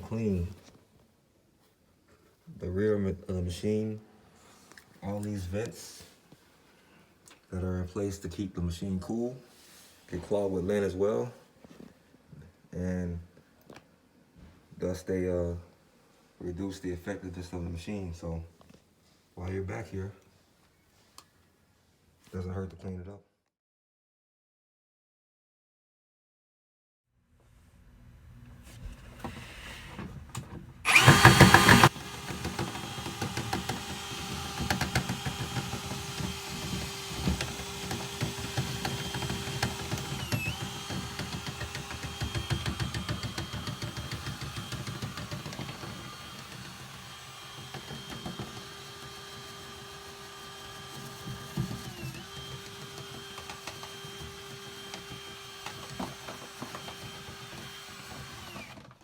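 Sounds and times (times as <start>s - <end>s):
rattling and knocking: 30.9s - 46.9s
small power tool motor running: 30.9s - 58.9s.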